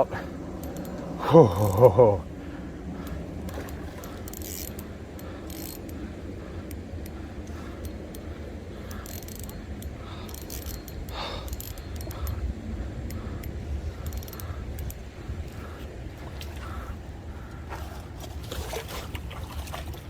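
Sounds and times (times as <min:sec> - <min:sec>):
fishing reel gears whirring: 0:00.0 - 0:18.2
fishing reel clicking: 0:00.3 - 0:02.0, 0:03.0 - 0:16.0.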